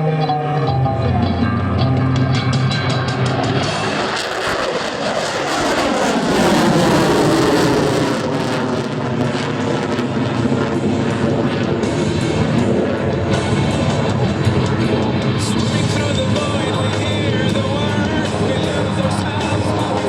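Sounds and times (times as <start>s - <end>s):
jet engines roaring: 0.0s - 20.0s
rock music over loudspeakers: 0.0s - 20.0s.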